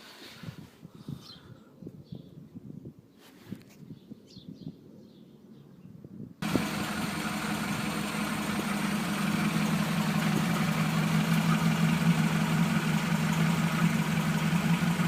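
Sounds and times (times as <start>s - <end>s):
car engine idling: 6.4s - 15.0s.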